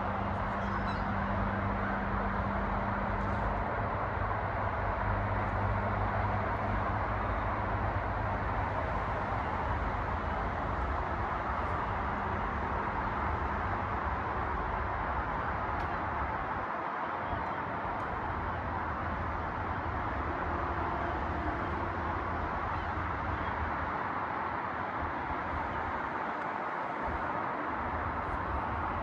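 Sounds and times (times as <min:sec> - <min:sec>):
flock of birds calling: 0:00.6 - 0:01.2.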